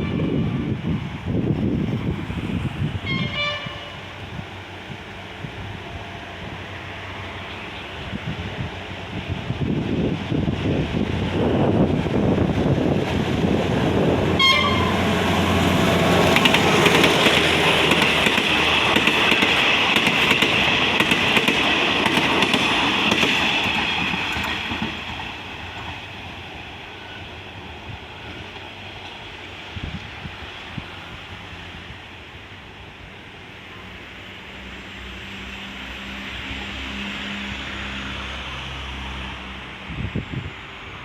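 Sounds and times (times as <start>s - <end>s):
train horn toot: 0.0s - 0.6s, 3.0s - 4.2s, 14.4s - 15.5s
diesel locomotive passing: 0.0s - 41.0s.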